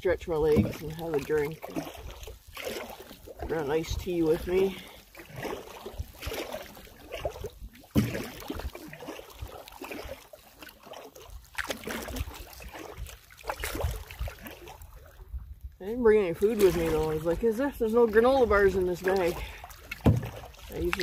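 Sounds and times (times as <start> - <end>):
water sloshing: 0.0 - 21.0
knocks on canoe hull: 7.9 - 8.4, 19.9 - 20.5.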